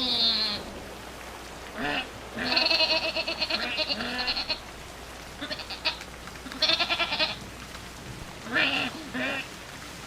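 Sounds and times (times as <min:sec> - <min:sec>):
livestock bleating: 0:01.8 - 0:04.6, 0:05.4 - 0:07.4, 0:08.5 - 0:09.5.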